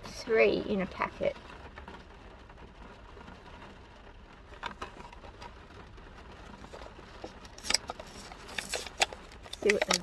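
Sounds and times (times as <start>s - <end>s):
plastic packaging crinkling: 6.4s - 10.0s.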